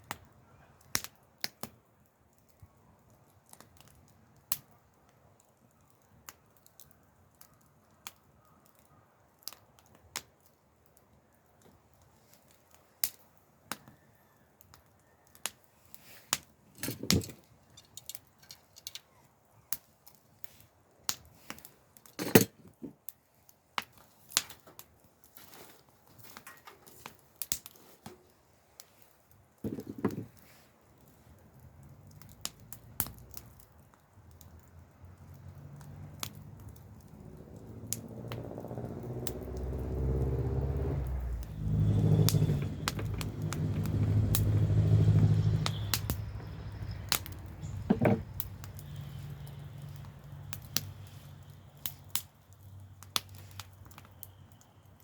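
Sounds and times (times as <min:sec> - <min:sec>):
campfire crackling: 0:00.0 - 0:55.0
dull knocks: 0:47.9 - 0:48.2.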